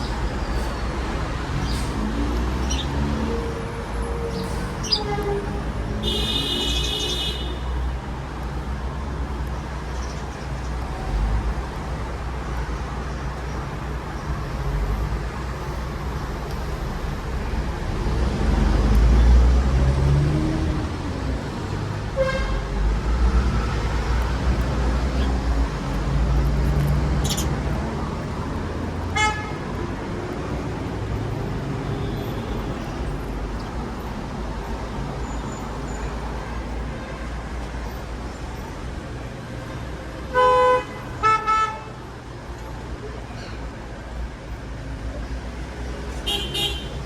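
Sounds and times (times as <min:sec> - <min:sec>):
road traffic rumble: 0:00.0 - 0:47.0
vehicle horn toots: 0:04.9 - 0:07.6, 0:29.2 - 0:29.6, 0:46.2 - 0:47.0.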